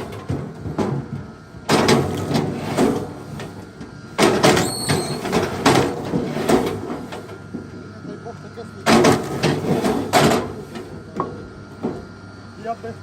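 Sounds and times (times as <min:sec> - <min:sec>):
scraping of logs: 0:00.0 - 0:07.5, 0:08.8 - 0:10.9.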